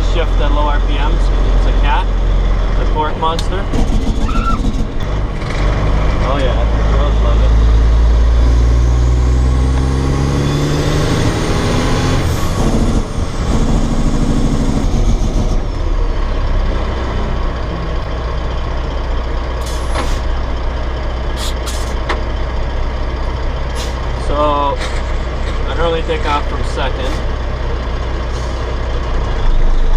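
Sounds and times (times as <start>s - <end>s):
diesel truck engine revving: 0.0s - 29.9s.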